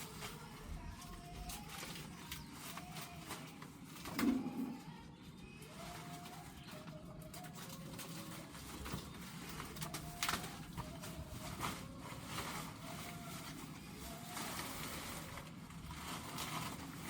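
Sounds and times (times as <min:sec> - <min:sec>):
dove cooing: 0:04.0 - 0:05.0.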